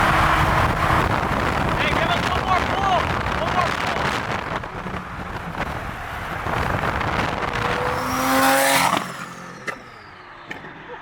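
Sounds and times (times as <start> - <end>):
car engine accelerating hard: 0.0 - 11.0
road and wind noise: 0.0 - 11.0.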